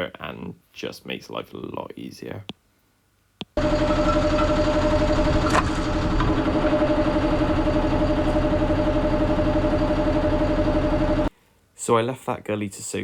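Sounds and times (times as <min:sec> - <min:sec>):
truck engine running with whine: 0:03.6 - 0:11.3.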